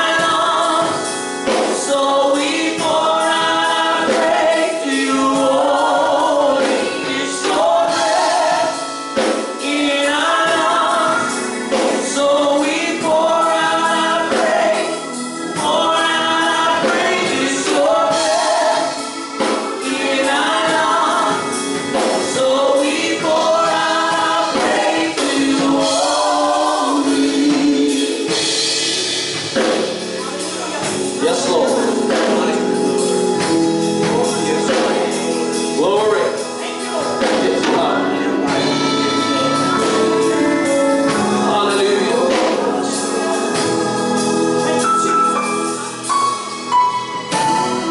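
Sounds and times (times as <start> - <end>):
choir singing gospel song: 0.0 - 47.9
instrumental accompaniment: 0.0 - 47.9
percussion hits: 13.0 - 36.2.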